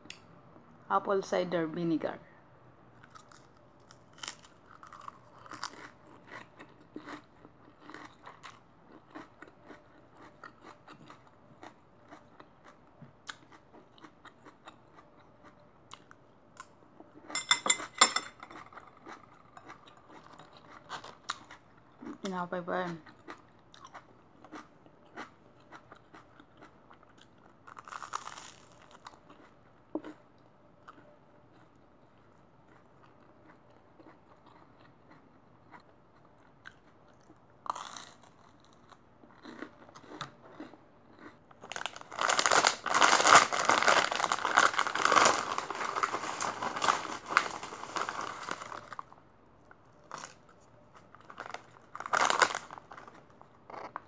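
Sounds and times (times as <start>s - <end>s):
chewing and crunching toast: 2.9s - 54.0s
chip bag crinkling: 41.1s - 49.1s, 51.1s - 54.0s.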